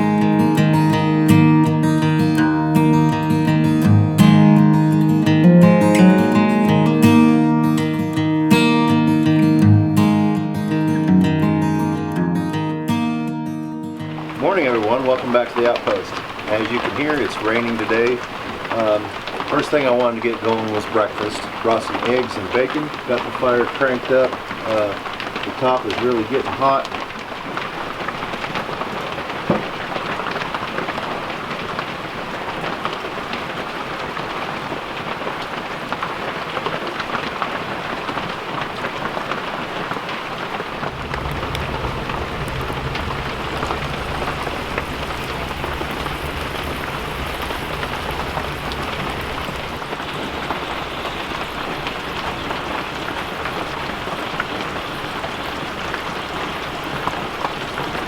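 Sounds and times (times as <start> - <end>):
steady rain falling: 0.0 - 58.0
low rumble: 40.7 - 52.8.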